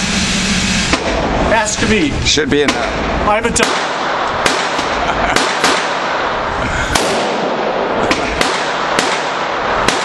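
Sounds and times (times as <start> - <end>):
gunshots: 0.9 - 1.4, 2.6 - 10.0.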